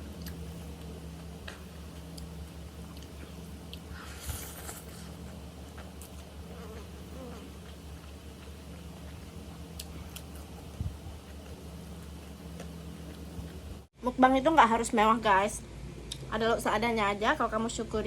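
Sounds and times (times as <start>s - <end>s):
person chewing and eating: 0.0s - 13.9s
steady low hum: 0.0s - 18.0s.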